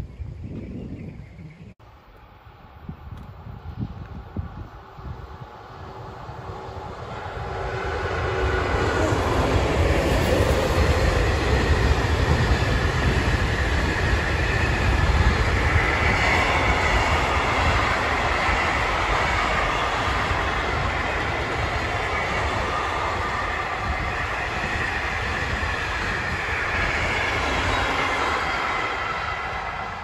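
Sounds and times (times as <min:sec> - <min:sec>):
freight train rumbling past: 0:02.0 - 0:30.0.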